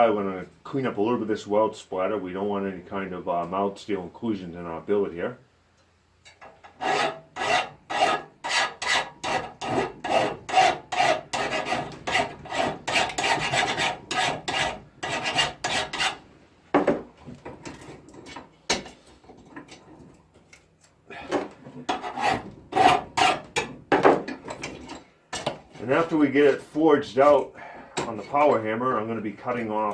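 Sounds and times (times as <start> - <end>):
file scraping steel: 6.3 - 16.2, 21.4 - 26.0.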